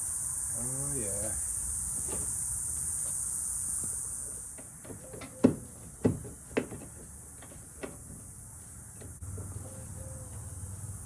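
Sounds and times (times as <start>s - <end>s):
sharp knocks on truck door: 4.6s - 8.3s.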